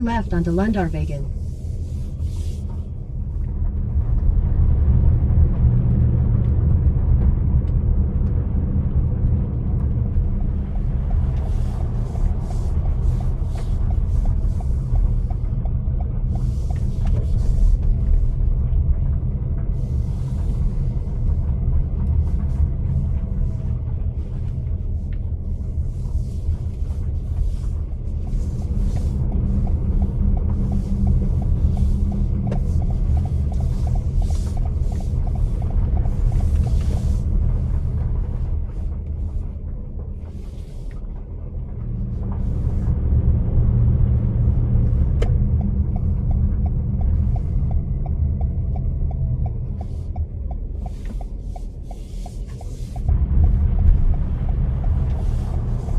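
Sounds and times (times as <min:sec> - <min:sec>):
car road rumble: 0:00.0 - 0:55.9
light regular ticking: 0:26.7 - 0:40.3, 0:45.2 - 0:55.9.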